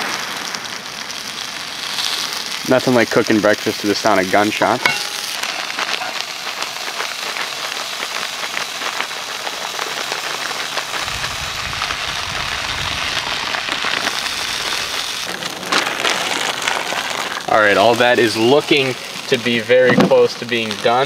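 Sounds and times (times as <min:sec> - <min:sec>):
food sizzling in a skillet: 0:00.0 - 0:21.0
low rumble: 0:11.0 - 0:15.0.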